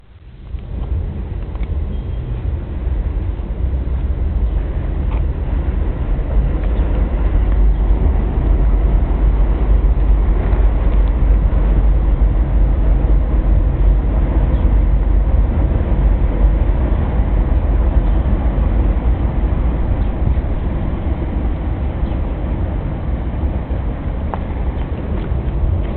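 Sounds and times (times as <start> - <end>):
car road and running noise: 0.0 - 25.9.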